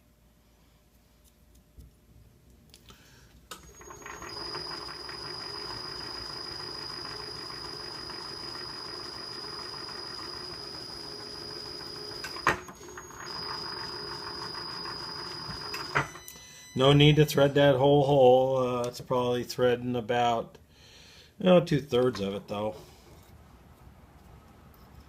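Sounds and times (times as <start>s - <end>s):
milling machine spindle whining: 3.6s - 17.6s.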